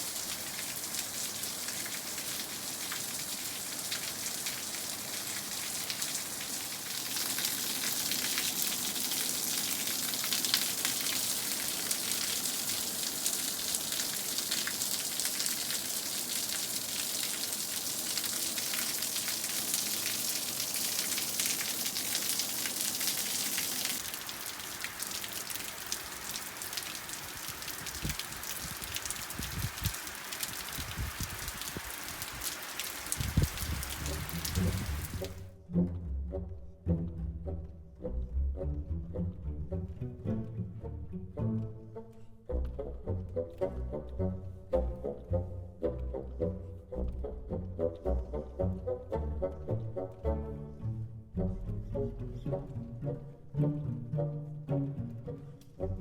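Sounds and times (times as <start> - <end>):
steady rain falling: 0.0 - 35.5.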